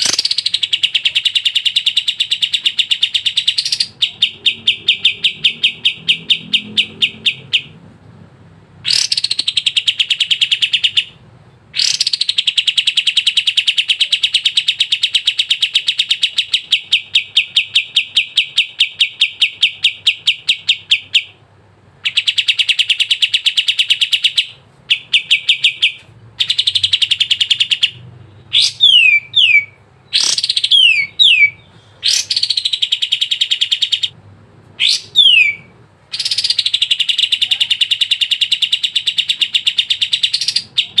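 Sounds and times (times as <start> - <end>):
songbird fast trills: 8.9 - 11.1.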